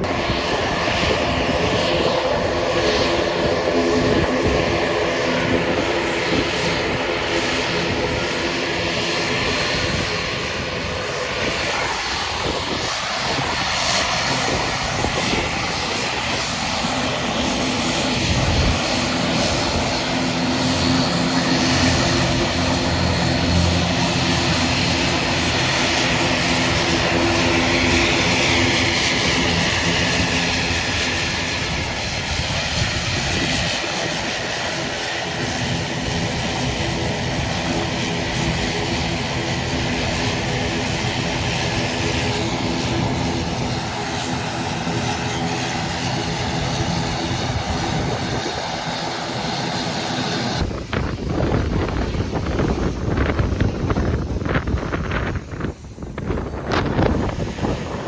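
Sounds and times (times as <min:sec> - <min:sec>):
aircraft engines running: 0:00.0 - 0:58.0.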